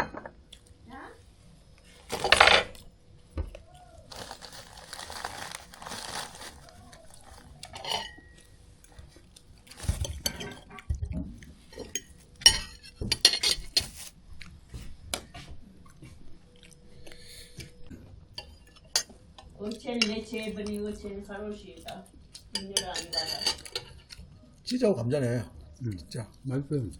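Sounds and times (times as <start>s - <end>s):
cutlery and dishes clinking: 2.1s - 2.8s, 7.7s - 8.4s, 9.8s - 10.7s, 11.7s - 14.1s, 22.4s - 24.2s.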